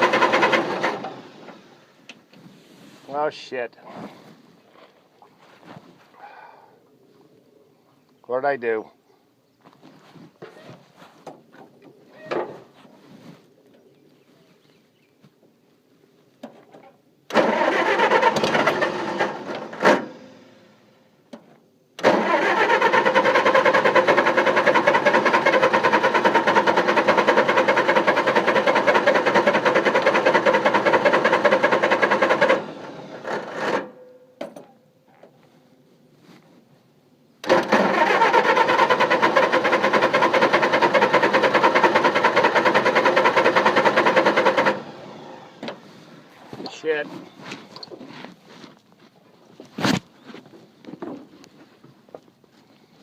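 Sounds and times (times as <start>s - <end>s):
engine cranking without starting: 0.0s - 2.0s, 17.3s - 20.7s, 22.0s - 34.0s, 37.4s - 45.8s.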